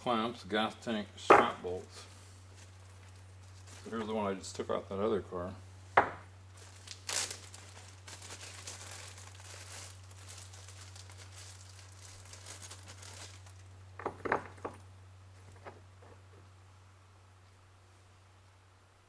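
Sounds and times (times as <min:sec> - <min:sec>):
steady low hum: 0:00.0 - 0:19.0
short knocks: 0:01.3 - 0:01.6, 0:06.0 - 0:06.3
parts bag crinkling: 0:02.5 - 0:04.2, 0:06.5 - 0:14.8.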